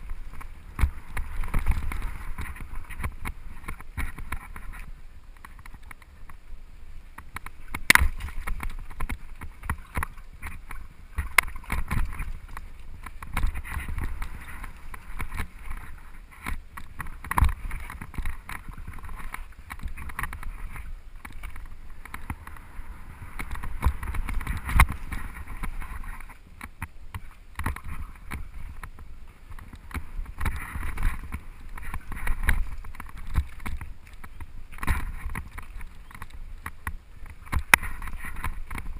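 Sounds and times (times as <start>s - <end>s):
mountain bike tyre rumble: 0.0s - 38.9s.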